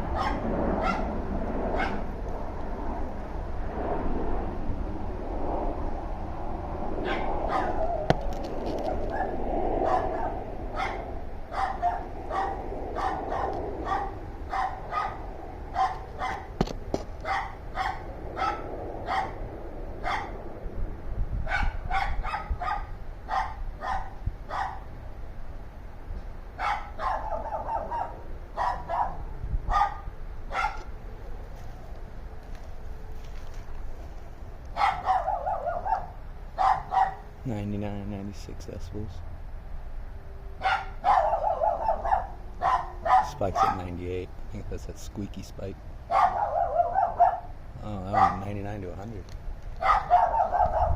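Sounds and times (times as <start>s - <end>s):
dogs barking: 0.1s - 2.1s, 7.0s - 8.1s, 8.8s - 16.6s, 17.2s - 19.4s, 20.0s - 20.4s, 21.5s - 24.9s, 26.6s - 30.9s, 34.7s - 37.3s, 40.6s - 44.0s, 46.1s - 48.6s, 49.8s - 50.9s.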